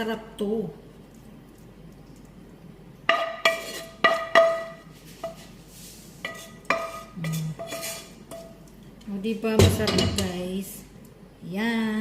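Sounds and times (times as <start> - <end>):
utensil clinking on metal pot: 3.1 - 5.4.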